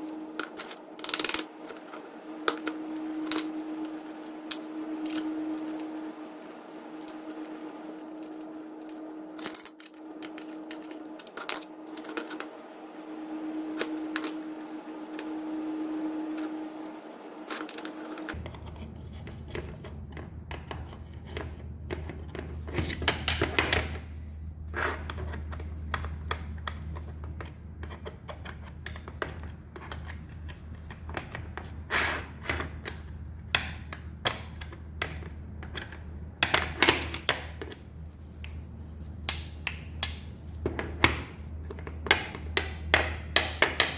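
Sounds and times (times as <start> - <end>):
steady hum: 0.0 - 43.9
tools clicking and tapping: 39.2 - 43.9.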